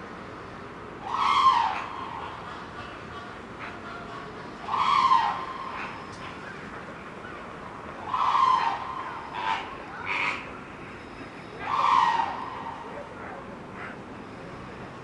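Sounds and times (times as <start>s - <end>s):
bird calling harshly: 1.0s - 2.9s, 4.6s - 6.6s, 11.5s - 13.0s.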